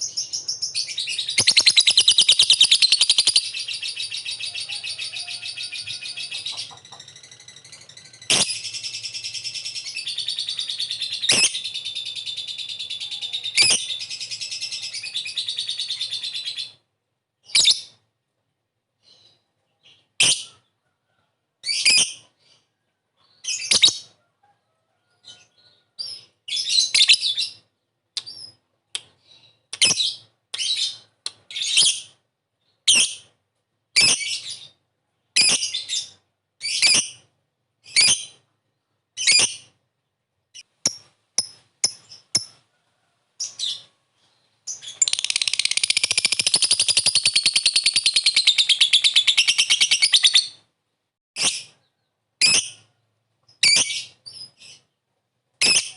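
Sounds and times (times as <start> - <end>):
lovebird chattering: 0.0 - 16.8, 40.8 - 42.6, 44.7 - 50.6.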